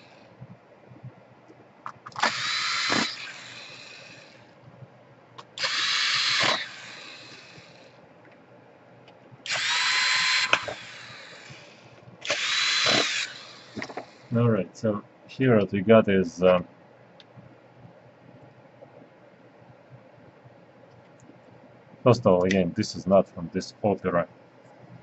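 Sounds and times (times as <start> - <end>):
electric screwdriver whining: 2.1 - 4.5, 5.4 - 7.9, 9.5 - 14.3.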